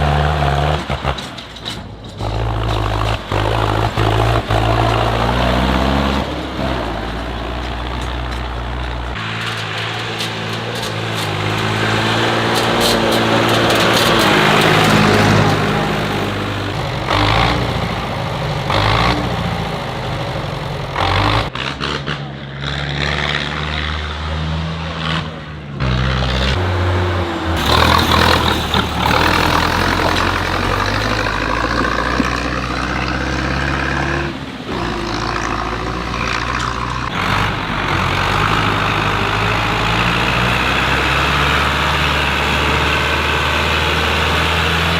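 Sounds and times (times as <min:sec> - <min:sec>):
tractor engines running: 0:00.0 - 0:21.7, 0:27.4 - 0:44.9.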